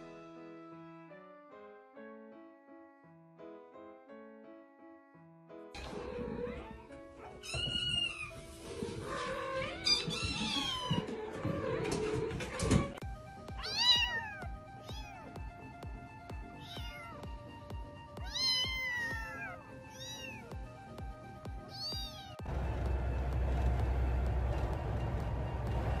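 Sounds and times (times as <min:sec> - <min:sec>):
background music: 0:00.0 - 0:26.0
kittens mewing: 0:06.4 - 0:12.0, 0:13.6 - 0:15.4, 0:16.5 - 0:17.2, 0:18.2 - 0:20.5, 0:21.6 - 0:22.4.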